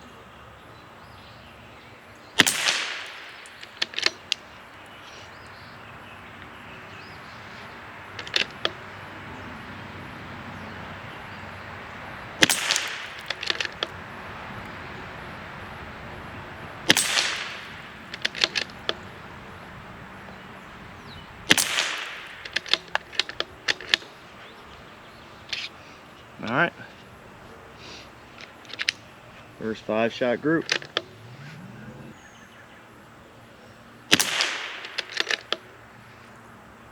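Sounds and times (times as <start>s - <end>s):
rifle bolt clicks: 2.4s - 5.2s, 8.2s - 8.8s, 12.4s - 13.9s, 16.9s - 19.0s, 21.5s - 24.2s, 28.4s - 29.1s, 30.6s - 31.8s, 34.1s - 35.7s
rifle shots: 2.4s - 5.2s, 12.3s - 24.3s, 34.1s - 35.7s.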